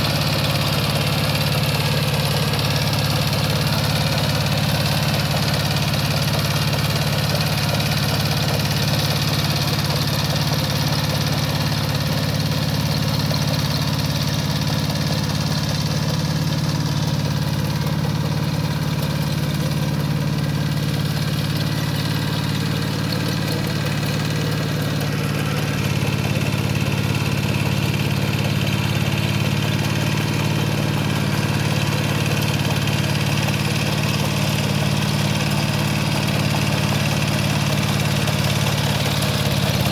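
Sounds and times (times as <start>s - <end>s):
power tiller engine running: 0.0s - 39.9s.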